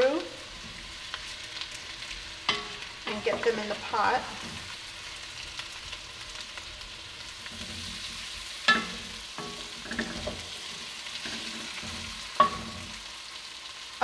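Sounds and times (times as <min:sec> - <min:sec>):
food sizzling in butter: 0:00.0 - 0:14.0
spoon scraping pot: 0:07.5 - 0:13.0.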